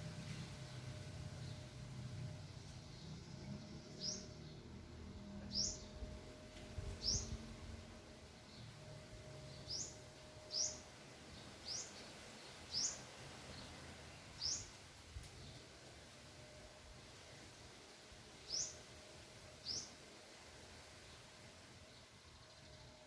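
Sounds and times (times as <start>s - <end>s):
bird chirping: 2.5s - 6.1s, 6.9s - 7.6s, 8.4s - 14.8s, 18.4s - 18.8s.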